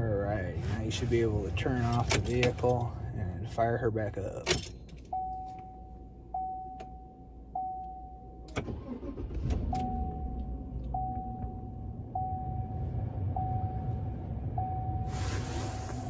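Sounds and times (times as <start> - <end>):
car engine starting and idling: 0.0 - 16.0
dashboard warning chime: 5.0 - 15.2
ignition click: 7.6 - 11.6.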